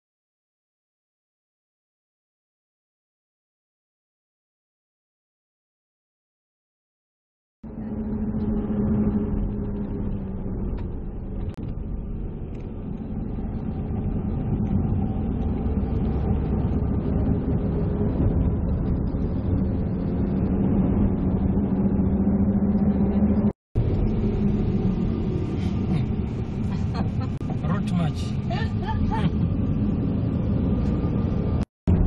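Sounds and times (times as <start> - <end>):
vehicle engine running: 7.6 - 32.0.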